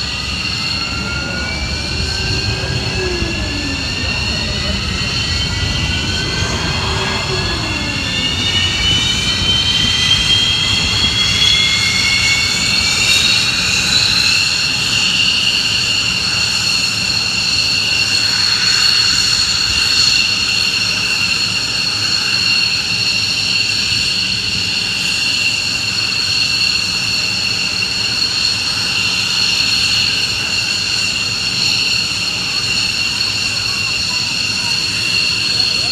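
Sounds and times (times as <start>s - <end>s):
jet engine whine: 0.0s - 35.9s
low rumble: 0.2s - 11.2s.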